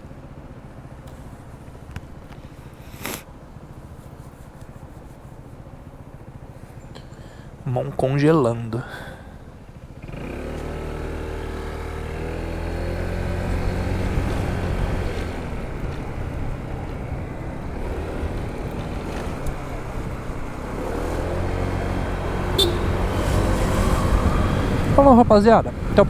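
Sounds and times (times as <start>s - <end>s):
scooter engine running: 0.0s - 7.6s, 9.2s - 26.0s.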